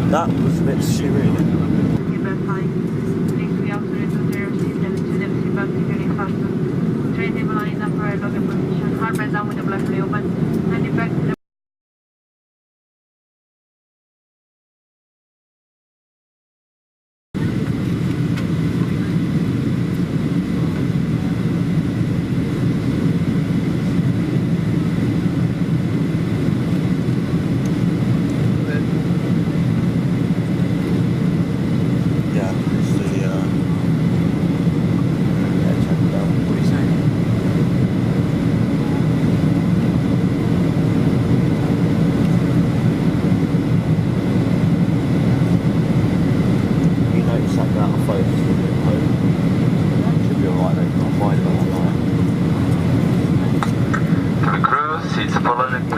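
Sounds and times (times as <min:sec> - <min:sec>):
aircraft cabin engine rumble: 0:00.0 - 0:11.4, 0:17.4 - 0:55.9
faint steady whine: 0:17.4 - 0:55.9.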